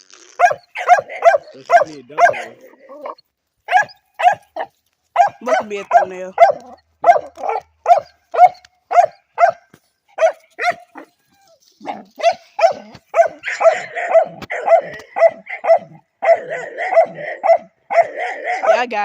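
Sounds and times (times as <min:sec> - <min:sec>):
dog barking: 0:00.4 - 0:11.1, 0:11.8 - 0:19.0.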